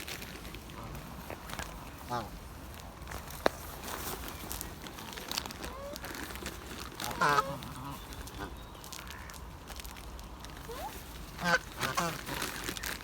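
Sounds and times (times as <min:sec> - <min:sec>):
waterfowl calling: 0:07.0 - 0:09.4, 0:10.7 - 0:12.2.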